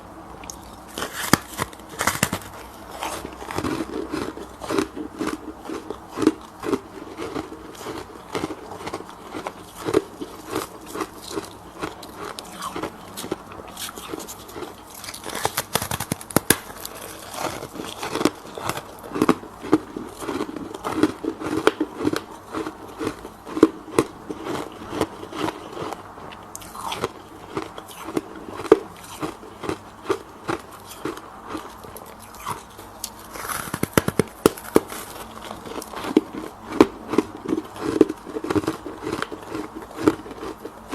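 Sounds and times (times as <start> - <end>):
person chewing frost: 0.0 - 40.9.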